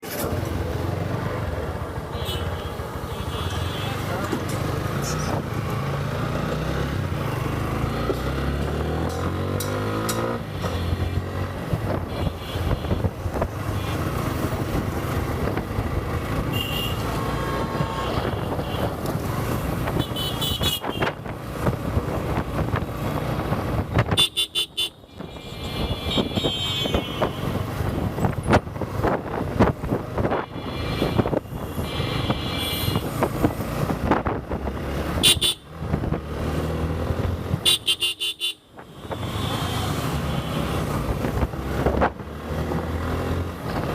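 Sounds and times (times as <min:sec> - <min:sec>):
motorcycle engine: 0:00.0 - 0:43.9
road noise: 0:00.0 - 0:43.9
vehicle horns tooting: 0:12.0 - 0:13.1, 0:16.5 - 0:17.1, 0:19.9 - 0:21.2, 0:24.1 - 0:27.7, 0:30.3 - 0:33.1, 0:35.2 - 0:35.7, 0:37.6 - 0:41.0.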